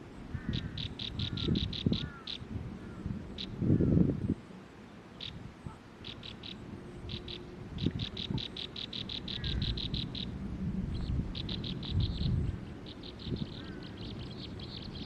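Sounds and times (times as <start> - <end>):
bird chirping rapidly: 0.4 - 2.4, 5.1 - 5.4, 6.0 - 10.3, 10.9 - 15.0.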